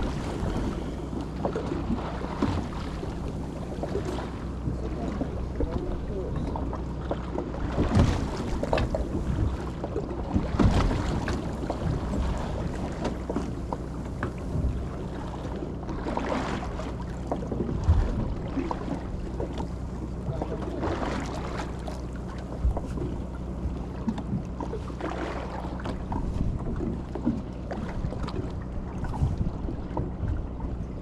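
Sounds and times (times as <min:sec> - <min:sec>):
steady low hum: 0:00.0 - 0:31.0
water noise: 0:00.0 - 0:31.0
wind buffeting microphone: 0:26.0 - 0:31.0.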